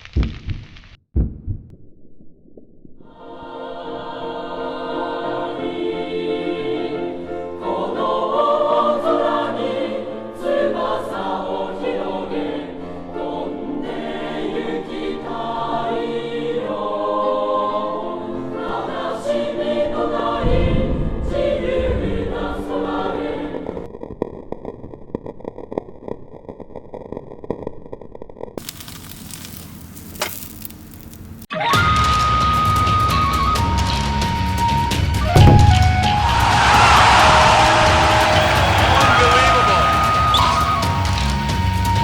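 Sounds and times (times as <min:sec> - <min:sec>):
choir singing sustained chords: 0:03.0 - 0:23.9, 0:35.4 - 0:42.0.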